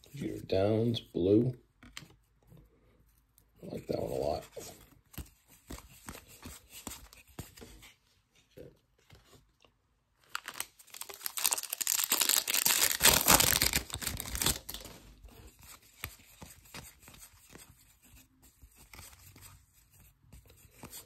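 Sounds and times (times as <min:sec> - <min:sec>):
wrapper and cards rustling: 0:10.2 - 0:19.7
foil wrapper tearing and crinkling: 0:10.3 - 0:14.9.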